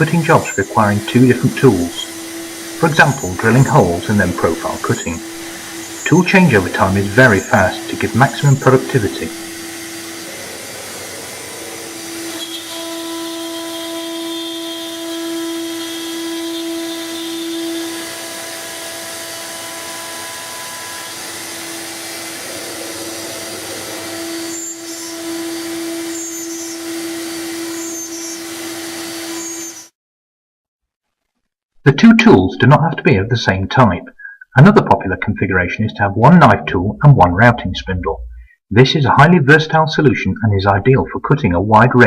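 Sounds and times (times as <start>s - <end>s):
cutting and extraction hiss: 0.0s - 29.9s
router spindle whine: 0.0s - 29.9s.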